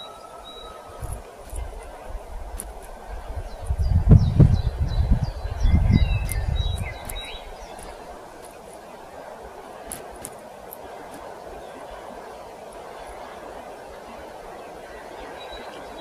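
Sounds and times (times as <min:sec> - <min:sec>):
faint steady hiss: 0:00.0 - 0:16.0
low gusty rumble: 0:00.0 - 0:16.0
small birds chirping: 0:00.0 - 0:16.0
high clicks: 0:06.0 - 0:08.9.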